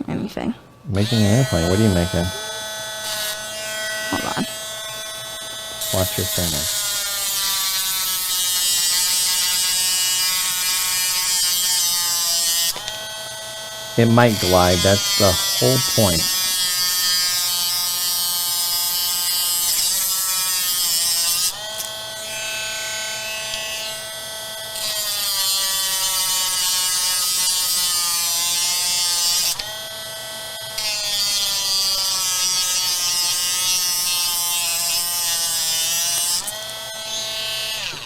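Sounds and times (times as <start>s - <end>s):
small electric motor whining: 0.9s - 38.0s.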